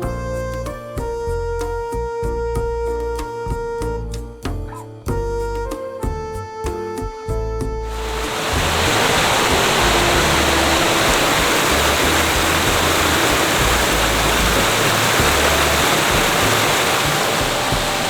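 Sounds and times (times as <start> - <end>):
waterfall rushing: 7.9 - 18.0.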